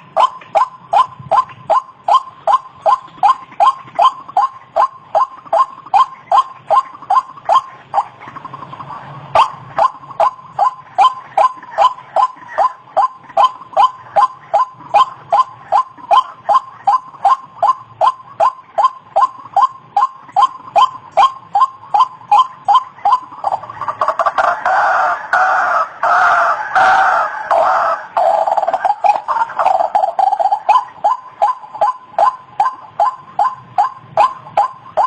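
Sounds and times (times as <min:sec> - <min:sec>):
waterhen calling: 0:00.0 - 0:35.0.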